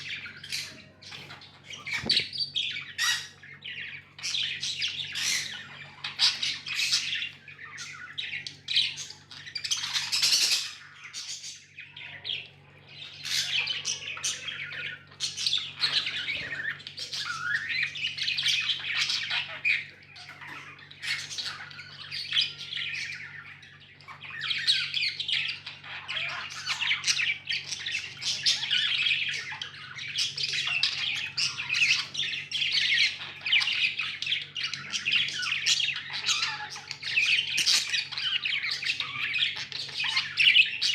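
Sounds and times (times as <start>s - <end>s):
budgerigars chirping and squawking: 0.0s - 40.9s.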